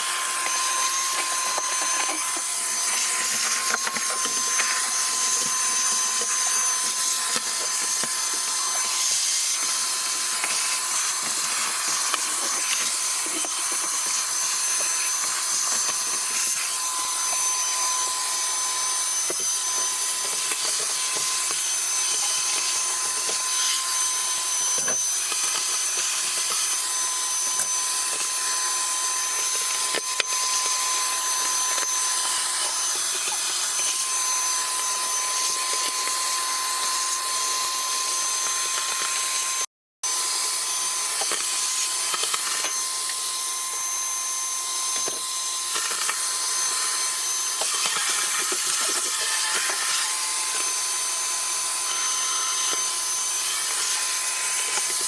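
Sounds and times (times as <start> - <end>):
vacuum nozzle scraping: 0.0 - 24.0
shop vac motor whine: 0.0 - 55.0.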